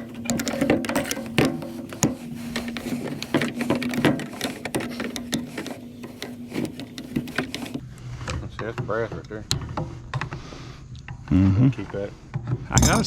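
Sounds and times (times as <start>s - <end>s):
hand tools clicking on metal: 0.0s - 7.8s.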